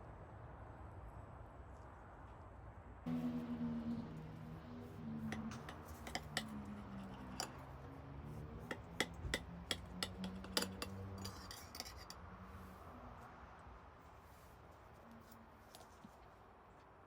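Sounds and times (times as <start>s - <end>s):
kitchenware clinking: 5.2s - 7.8s, 8.5s - 12.2s.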